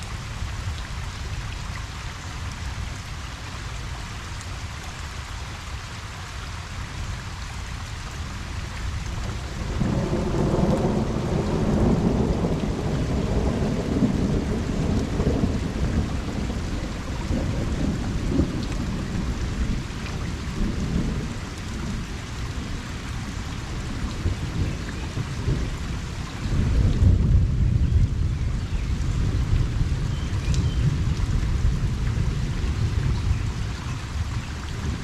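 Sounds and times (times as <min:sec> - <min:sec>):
rain pattering: 0:00.0 - 0:35.0
distant thunder rumble: 0:09.2 - 0:35.0.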